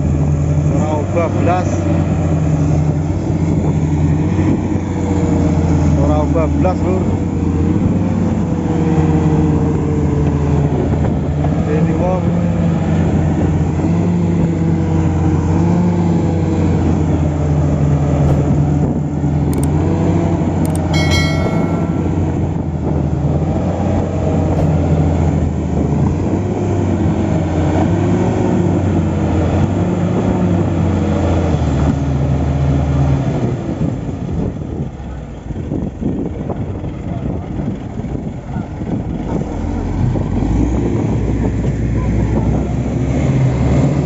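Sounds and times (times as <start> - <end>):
ringing metal clank: 20.7 - 22.9
bulldozer diesel engine running: 34.2 - 40.6.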